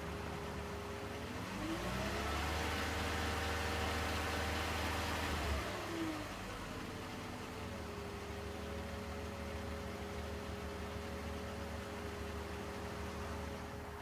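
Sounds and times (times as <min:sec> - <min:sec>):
car engine revving: 0:01.1 - 0:07.0.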